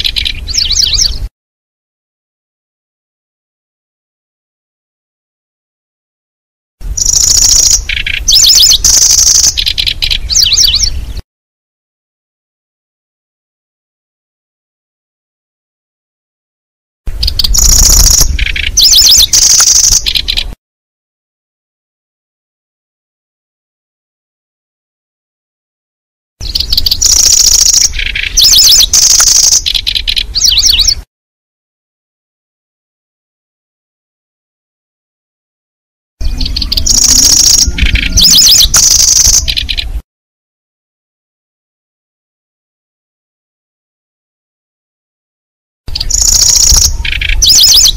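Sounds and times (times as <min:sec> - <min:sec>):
recorded warbler song trills: 0:00.0 - 0:01.3, 0:06.8 - 0:11.2, 0:17.1 - 0:20.6, 0:26.4 - 0:31.1, 0:36.2 - 0:40.0, 0:45.9 - 0:47.9
swooping whistled bird notes: 0:07.0 - 0:11.0, 0:17.2 - 0:20.4, 0:26.4 - 0:31.0, 0:36.2 - 0:39.9, 0:45.9 - 0:47.9.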